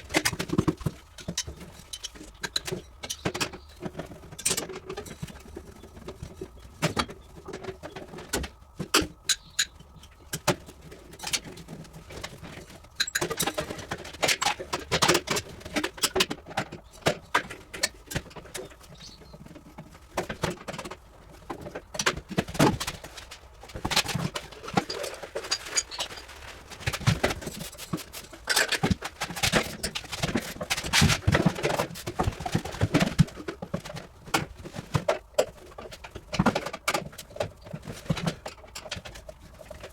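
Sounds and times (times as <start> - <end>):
hand tools clicking and rattling: 0.0 - 39.9.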